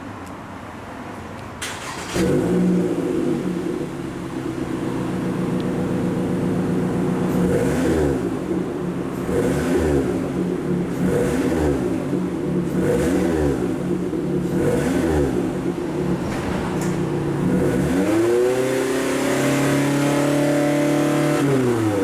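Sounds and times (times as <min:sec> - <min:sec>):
car engine idling: 0:02.7 - 0:19.3.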